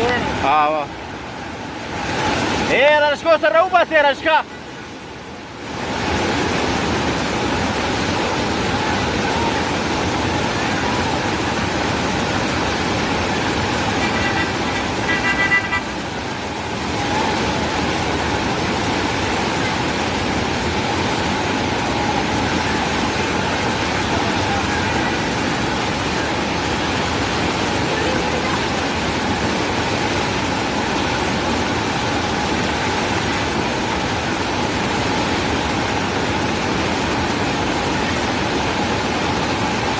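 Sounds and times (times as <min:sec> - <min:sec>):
floodwater rushing: 0:00.0 - 0:39.9
horn toot: 0:14.0 - 0:16.0.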